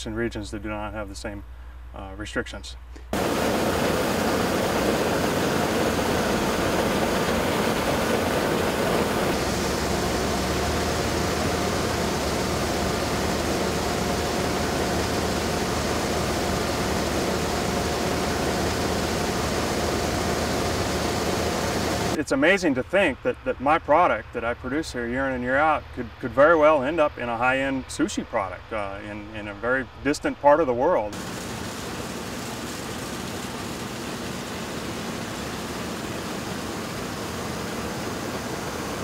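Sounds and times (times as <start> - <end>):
harvest machinery running: 3.2 - 22.2, 31.2 - 39.0.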